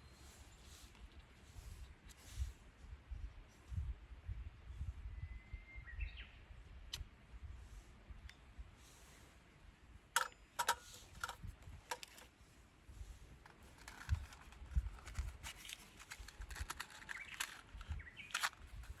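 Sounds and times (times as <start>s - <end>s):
sharp clicks and knocks: 10.2s - 12.3s, 13.4s - 19.0s
rustling: 13.0s - 19.0s.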